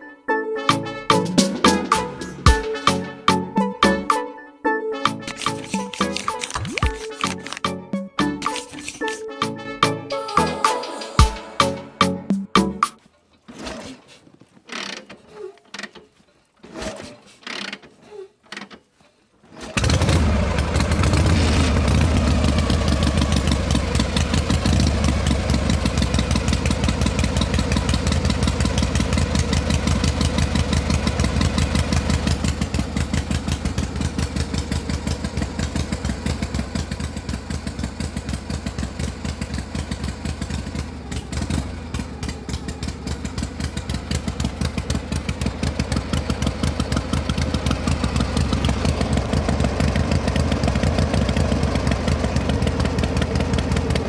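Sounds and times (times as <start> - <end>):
small engine running: 19.7 - 54.0.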